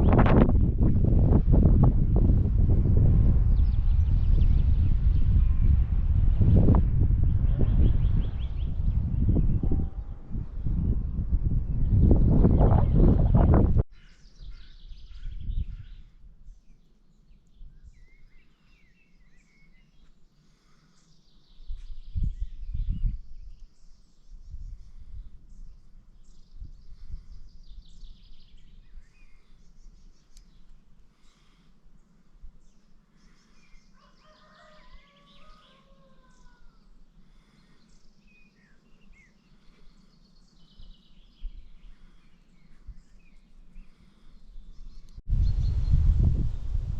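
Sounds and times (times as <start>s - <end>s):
low rumble: 0.0s - 13.8s
songbirds chirping and twittering: 0.0s - 46.9s.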